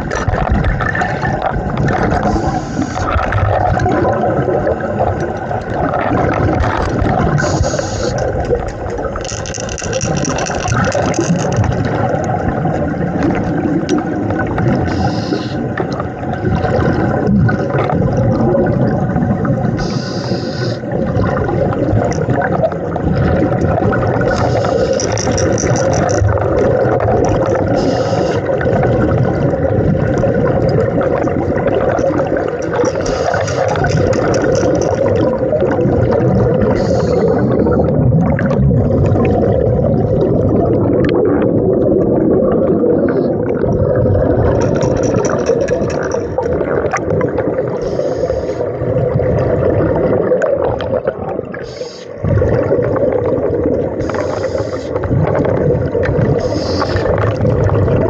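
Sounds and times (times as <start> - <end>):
bubbles gurgling underwater: 0.0 - 58.0
diver breathing through regulator: 2.2 - 3.1, 7.4 - 8.2, 14.9 - 15.7, 19.8 - 20.9, 24.3 - 25.3, 27.7 - 28.5, 32.9 - 33.9, 36.7 - 37.9, 47.8 - 48.8, 51.6 - 52.2, 54.0 - 55.0, 56.4 - 57.2.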